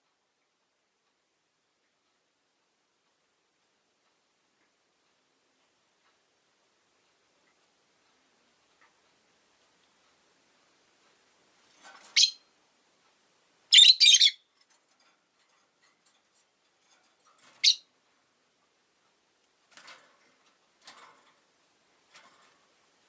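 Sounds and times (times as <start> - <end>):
lovebirds shrill calls: 12.1 - 12.4, 13.7 - 14.4, 17.6 - 17.9.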